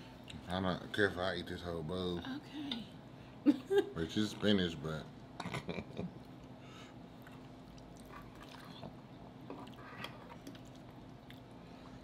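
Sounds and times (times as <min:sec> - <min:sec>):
people chewing: 0:05.4 - 0:11.7.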